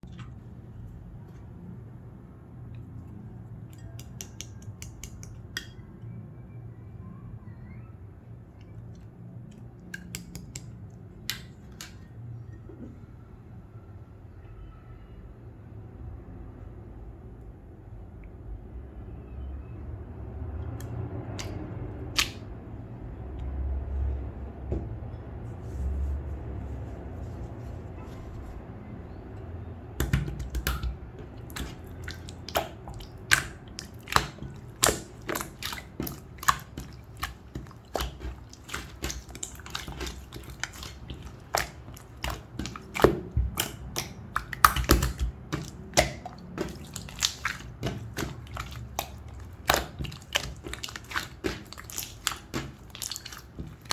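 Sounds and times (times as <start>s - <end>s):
low rumble of handling: 20.8s - 53.9s
slime popping and clicking: 30.0s - 53.9s.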